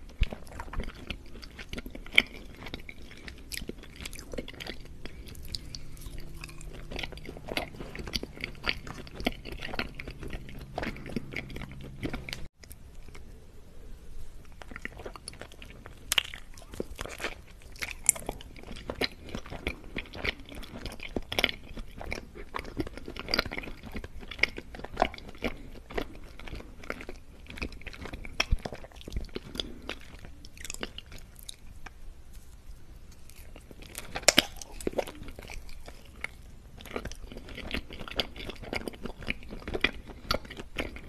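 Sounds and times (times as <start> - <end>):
chewing: 0.0 - 13.3, 14.4 - 41.0
biting food: 33.1 - 41.0
mouth clicks and smacks: 34.0 - 36.2.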